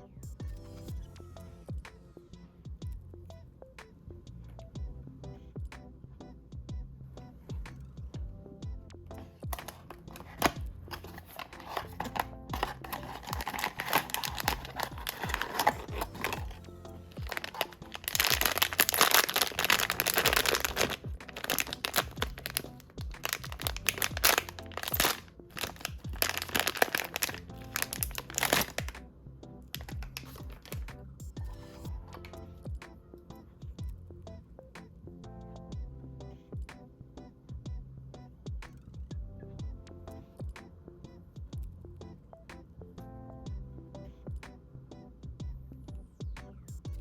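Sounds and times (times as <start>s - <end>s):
background music: 0.0s - 47.0s
plastic wrapping crinkling and tearing: 9.5s - 29.0s, 29.7s - 30.9s.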